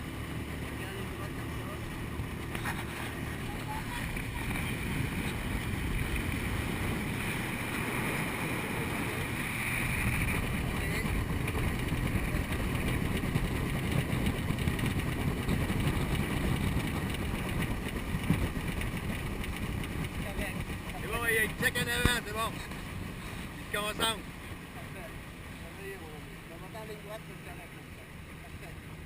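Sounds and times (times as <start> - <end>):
motorboat engine running: 0.0 - 29.0
wind buffeting microphone: 2.0 - 23.7.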